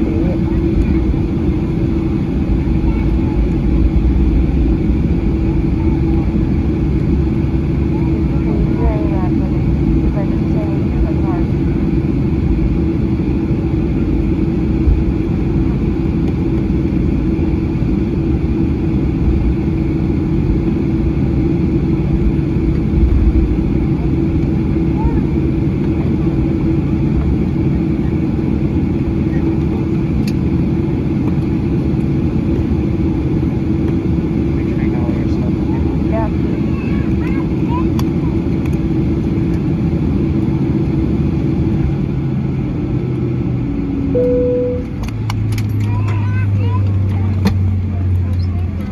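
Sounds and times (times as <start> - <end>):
airplane cabin rumble and hum: 0.0 - 48.9
vehicle rumble: 36.7 - 48.9.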